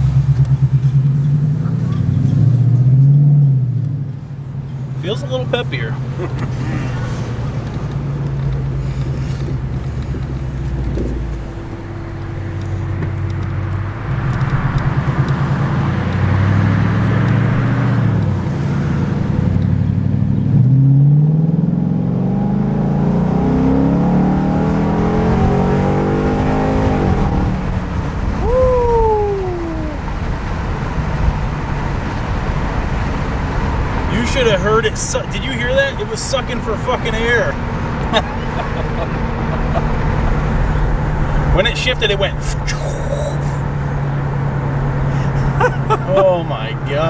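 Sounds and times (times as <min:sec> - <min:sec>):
car engine accelerating hard: 0:00.0 - 0:47.0.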